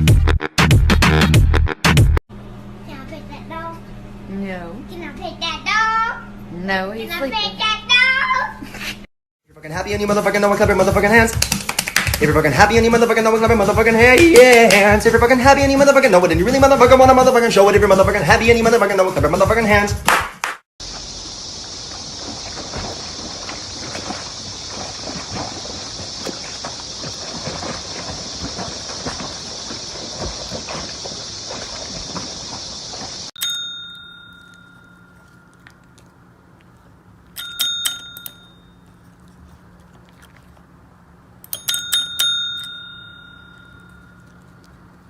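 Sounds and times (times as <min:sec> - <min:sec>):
small metal bell ringing: 0:33.4 - 0:36.1, 0:37.4 - 0:39.0, 0:41.5 - 0:44.8.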